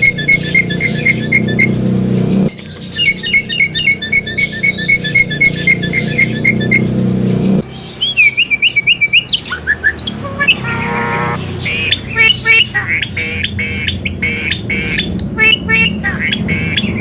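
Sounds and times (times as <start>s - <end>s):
myna whistling and chattering: 0.0s - 1.8s, 2.6s - 6.9s, 8.0s - 13.4s.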